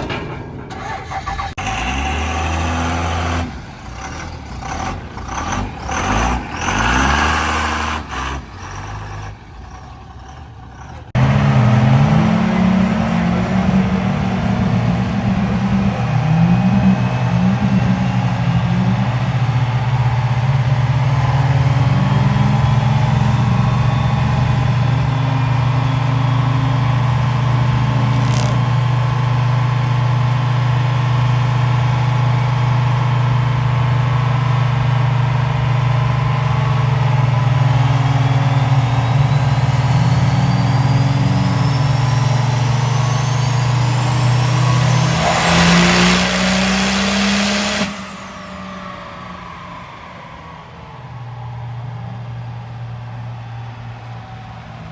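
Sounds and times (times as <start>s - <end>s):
diesel engine drone under load: 0.0s - 54.9s
rising whine: 11.2s - 31.3s, 34.5s - 50.9s.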